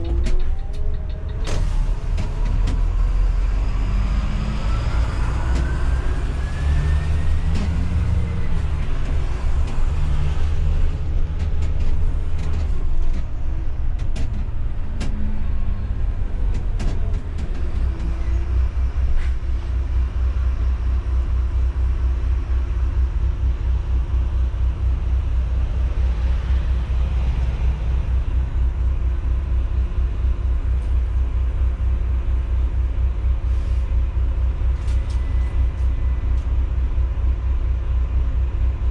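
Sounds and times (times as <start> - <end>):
rising whine: 0.0 - 13.0
bus engine and road rumble: 0.0 - 38.9.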